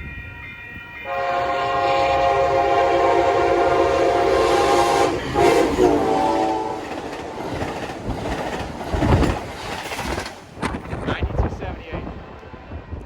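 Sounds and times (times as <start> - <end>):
train cars rushing and rumbling: 0.0 - 13.0
train air horn: 1.0 - 7.0.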